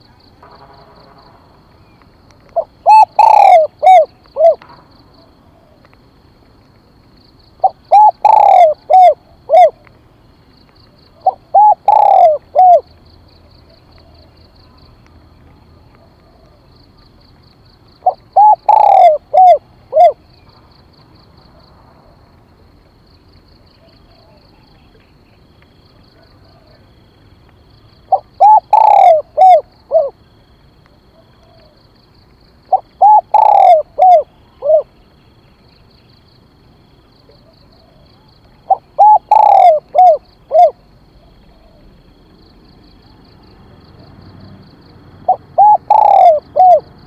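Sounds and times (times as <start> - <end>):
dove cooing: 2.4 - 4.6, 5.2 - 5.9, 7.6 - 9.9, 11.1 - 12.9, 18.0 - 20.2, 26.2 - 26.9, 28.1 - 30.2, 31.1 - 31.8, 32.7 - 34.9, 37.2 - 42.1, 45.2 - 46.9.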